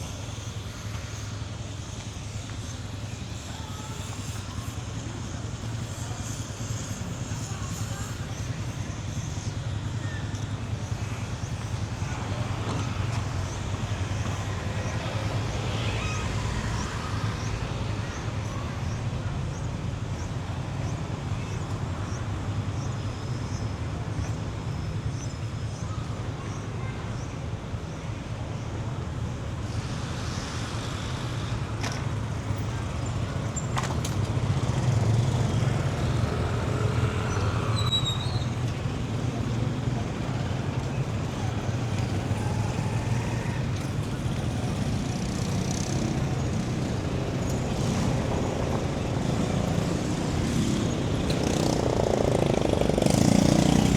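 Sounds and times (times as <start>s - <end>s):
traffic rumble: 0.0s - 53.9s.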